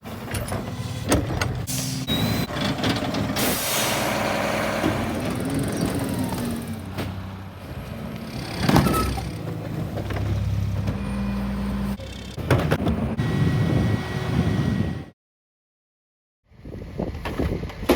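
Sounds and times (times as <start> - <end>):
garbage truck running: 0.0 - 15.1
loud hiss of air: 3.4 - 4.5.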